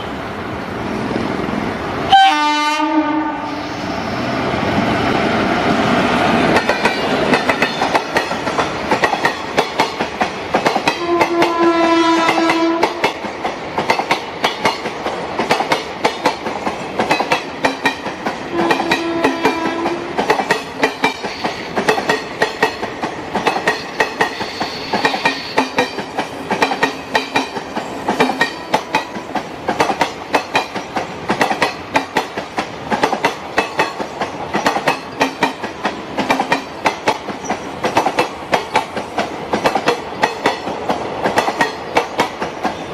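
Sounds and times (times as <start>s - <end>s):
train horn: 2.1s - 3.8s, 11.0s - 13.0s, 18.5s - 20.2s
train wheels clicking over rail joints: 6.4s - 42.9s.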